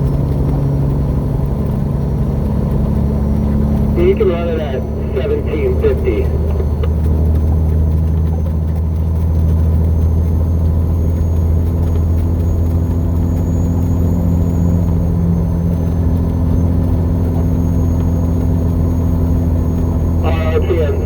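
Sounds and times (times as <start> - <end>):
truck diesel engine droning: 0.0 - 21.0.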